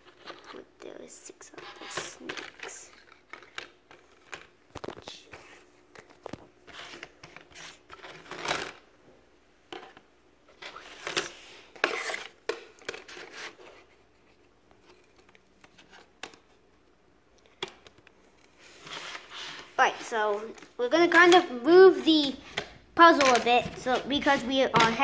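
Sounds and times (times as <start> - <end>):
puzzle pieces scraping: 1.5 - 4.5, 10.6 - 12.4.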